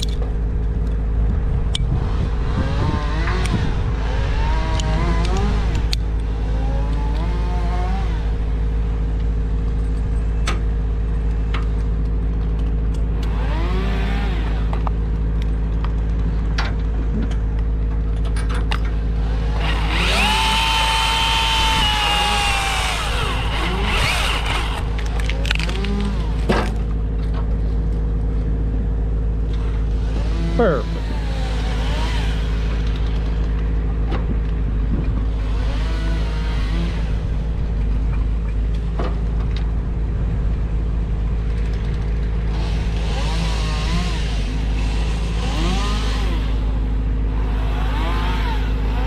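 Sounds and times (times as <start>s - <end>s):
engine running: 0.0s - 49.0s
rising and falling whines: 0.8s - 9.2s, 19.2s - 27.0s, 29.6s - 34.2s, 42.6s - 49.0s.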